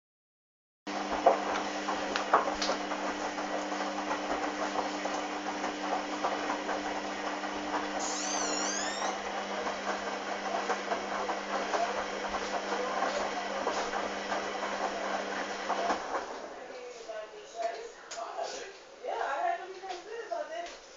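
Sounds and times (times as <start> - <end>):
washing machine motor hum: 0.9 - 16.6
warbling high whistle: 8.0 - 9.2.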